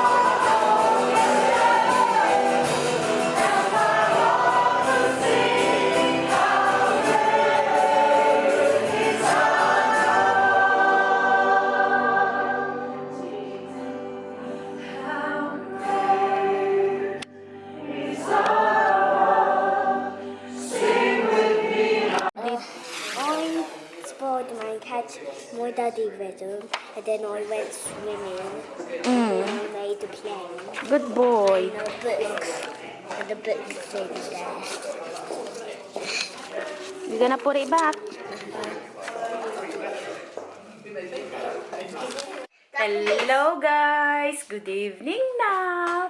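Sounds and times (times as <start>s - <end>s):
choir singing a hymn: 0.0s - 24.2s.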